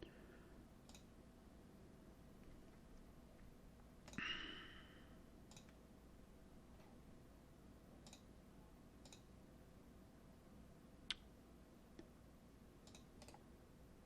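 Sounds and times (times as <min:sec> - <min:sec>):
computer mouse clicks: 0:00.8 - 0:01.1, 0:05.5 - 0:05.8, 0:08.0 - 0:08.3, 0:09.0 - 0:09.3, 0:12.8 - 0:13.5.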